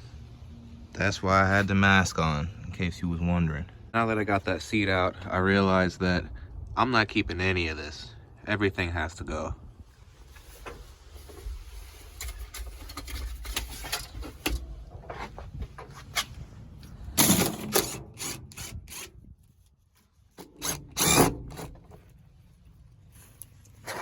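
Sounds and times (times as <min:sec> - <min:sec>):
car trim being scraped out: 0:20.4 - 0:22.0.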